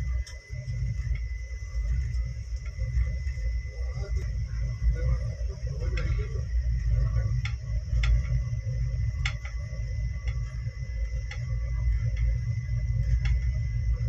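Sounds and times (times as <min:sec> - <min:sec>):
train rumble from inside: 0:00.0 - 0:14.0
wheels clicking on rails: 0:01.9 - 0:08.4.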